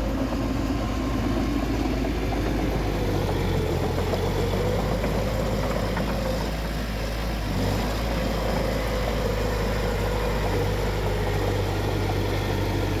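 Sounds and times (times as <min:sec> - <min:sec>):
high engine whine: 0:00.0 - 0:04.0
diesel engine running: 0:00.0 - 0:13.0.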